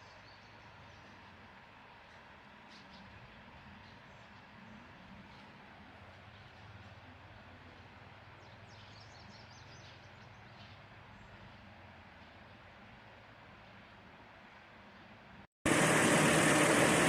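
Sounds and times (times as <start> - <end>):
steady low hum: 15.7 - 17.0.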